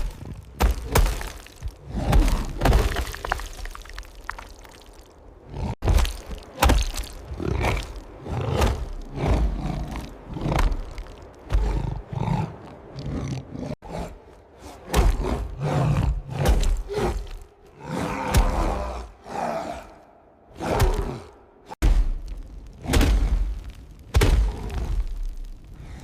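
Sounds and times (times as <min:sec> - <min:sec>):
big cat roars and snarls: 0:00.0 - 0:03.2, 0:05.4 - 0:21.8.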